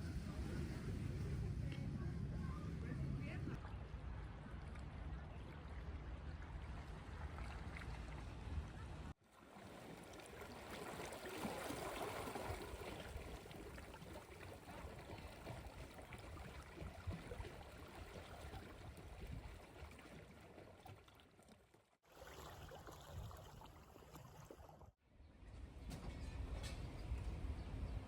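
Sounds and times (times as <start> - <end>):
outdoor background noise: 0.0 - 28.0
stream water running: 4.0 - 25.0.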